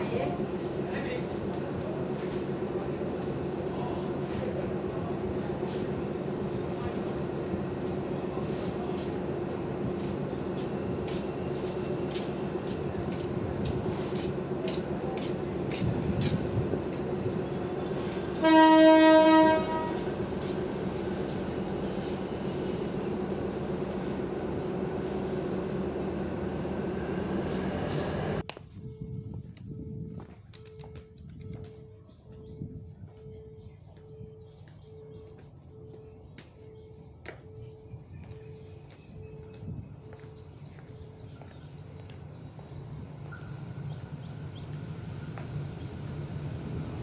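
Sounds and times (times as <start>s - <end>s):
diesel train engine humming: 0.0s - 47.0s
locomotive horn blast: 17.9s - 20.5s.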